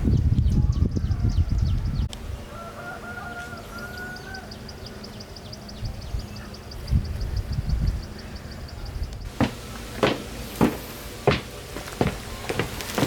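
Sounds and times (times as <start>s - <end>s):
low rumbling and knocking: 9.3s - 13.0s.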